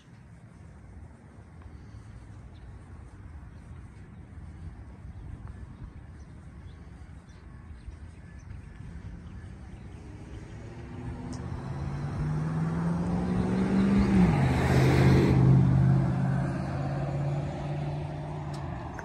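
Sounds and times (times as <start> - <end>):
vehicle engine revving: 9.4 - 19.0.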